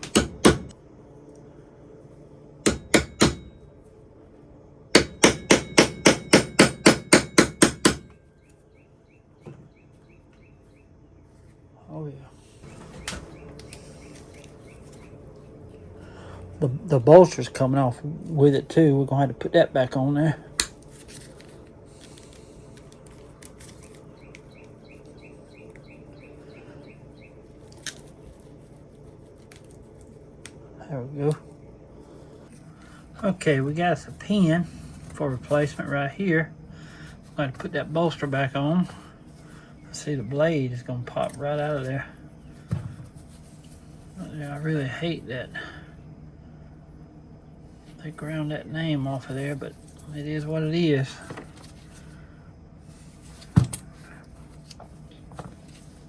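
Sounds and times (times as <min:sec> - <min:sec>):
hammer tapping metal punch: 0:00.0 - 0:00.7, 0:02.7 - 0:03.6, 0:05.0 - 0:08.2
bird chirping: 0:24.1 - 0:27.4.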